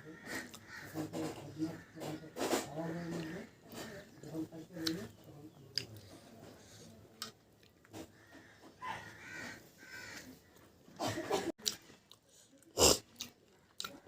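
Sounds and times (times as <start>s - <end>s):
chewing and mouth clicks: 7.2s - 7.9s, 11.6s - 14.0s.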